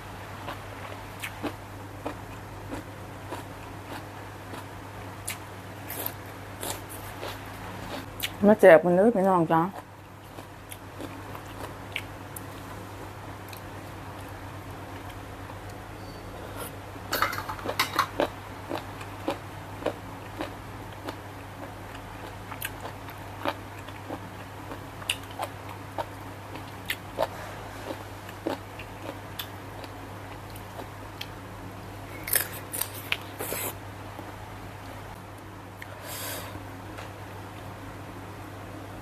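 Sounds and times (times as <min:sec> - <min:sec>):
steady low hum: 0:00.0 - 0:39.0
crunchy chewing: 0:00.4 - 0:08.4, 0:09.7 - 0:12.7, 0:17.6 - 0:31.3, 0:32.1 - 0:34.3.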